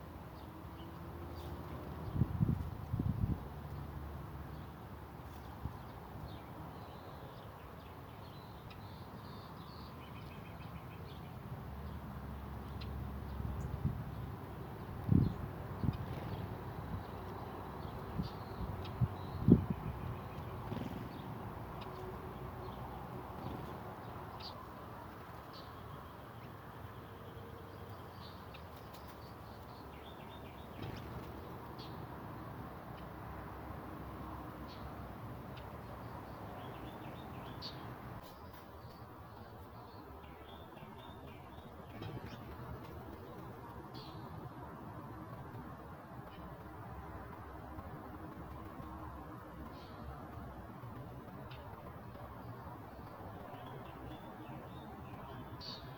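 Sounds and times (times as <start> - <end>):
steady low background noise: 0.0 - 55.9
birds chirping: 4.5 - 32.2, 34.6 - 44.5, 50.9 - 55.9.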